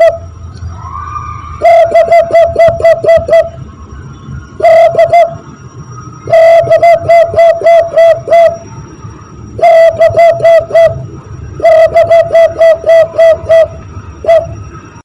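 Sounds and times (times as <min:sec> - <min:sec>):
hand-blown dove call imitation: 0:00.0 - 0:00.3, 0:01.6 - 0:03.6, 0:04.6 - 0:05.4, 0:06.3 - 0:08.6, 0:09.6 - 0:11.0, 0:11.6 - 0:14.6.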